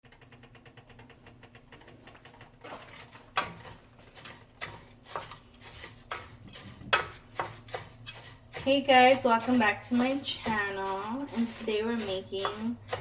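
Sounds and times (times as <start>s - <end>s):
spoon scraping a pot: 2.2s - 13.0s
spoon knocking on pot: 6.1s - 8.0s.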